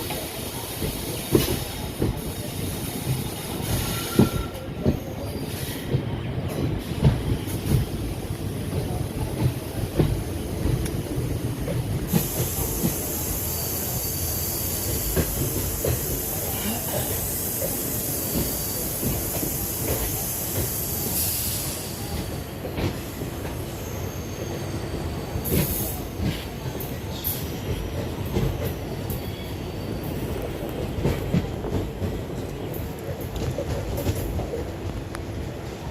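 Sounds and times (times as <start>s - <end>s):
train rumbling on rails: 0.0s - 35.9s
high squealing hiss: 0.3s - 5.9s, 12.1s - 22.1s
short bright wheel squeals: 3.6s - 4.6s.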